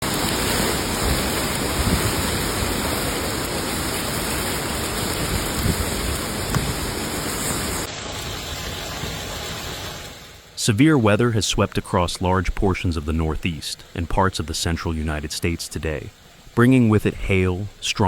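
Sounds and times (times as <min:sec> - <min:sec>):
heavy rain or hail drumming: 0:00.0 - 0:10.6.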